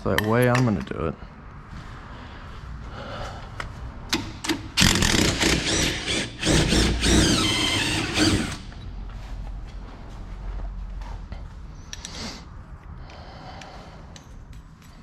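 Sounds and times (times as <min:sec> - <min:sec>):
power tool motor whining: 0:04.8 - 0:08.7.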